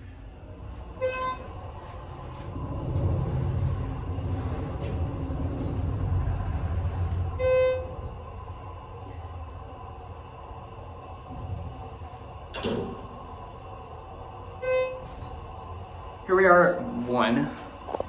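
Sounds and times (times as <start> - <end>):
elevator low rumble: 0.0 - 18.0
elevator electronic beeps: 0.8 - 5.9, 7.1 - 8.6, 14.6 - 16.0.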